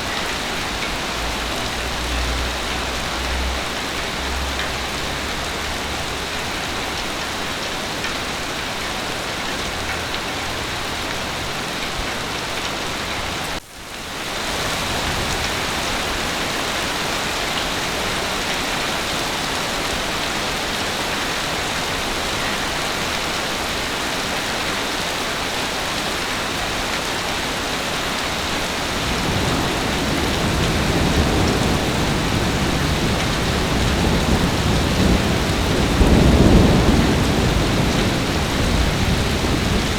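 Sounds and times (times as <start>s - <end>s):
heavy rain falling: 0.0s - 39.9s
low rumble of thunder: 28.7s - 39.9s.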